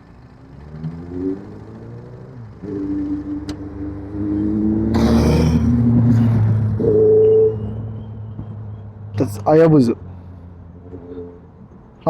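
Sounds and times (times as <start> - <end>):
motorcycle engine accelerating: 0.0 - 8.8.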